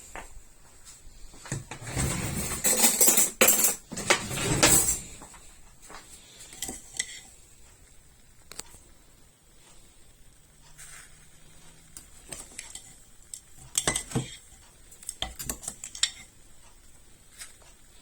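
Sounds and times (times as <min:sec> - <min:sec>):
teaspoon scraping crockery: 0:06.4 - 0:07.4, 0:10.8 - 0:16.3.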